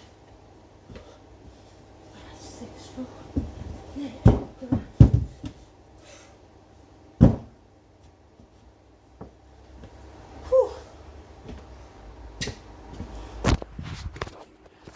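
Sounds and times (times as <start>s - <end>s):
dull thuds and knocks: 3.4s - 5.6s, 7.2s - 7.6s.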